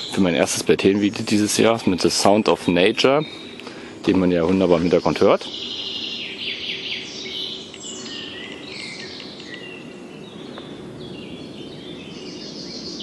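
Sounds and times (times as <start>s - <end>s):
outdoor background hiss: 0.0s - 13.0s
songbirds singing and chirping: 0.0s - 13.0s.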